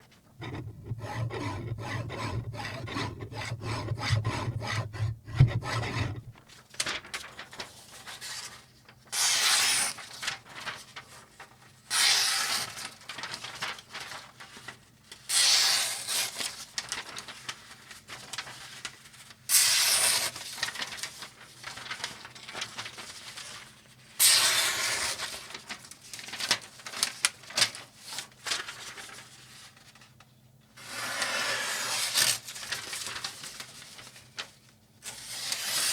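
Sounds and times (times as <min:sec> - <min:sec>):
knife scraping across sharpener: 0:00.4 - 0:06.4
light scratching: 0:00.4 - 0:06.4.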